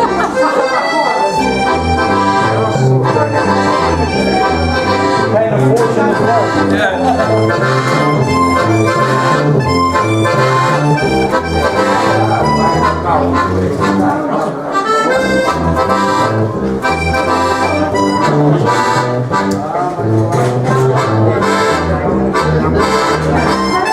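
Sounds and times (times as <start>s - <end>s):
accordion music: 0.0s - 23.9s.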